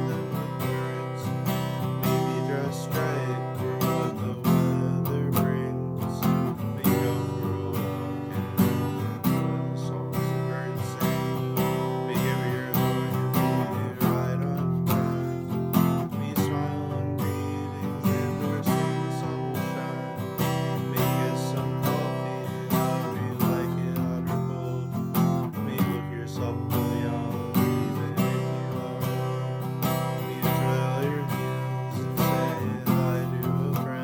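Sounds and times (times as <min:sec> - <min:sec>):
acoustic guitar strumming: 0:00.0 - 0:34.0.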